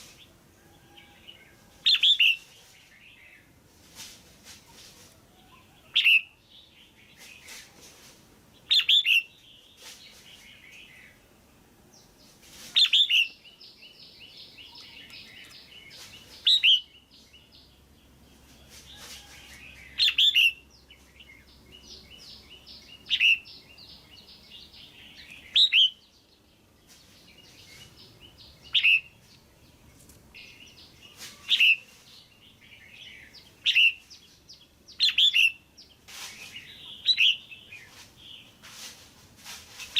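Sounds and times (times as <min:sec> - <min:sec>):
bird sharp calls: 0:08.7 - 0:09.4, 0:12.8 - 0:13.5, 0:14.4 - 0:16.9, 0:19.9 - 0:20.6, 0:22.1 - 0:26.0, 0:27.6 - 0:29.2, 0:30.4 - 0:32.1, 0:32.9 - 0:34.2, 0:34.9 - 0:35.6, 0:36.2 - 0:38.4.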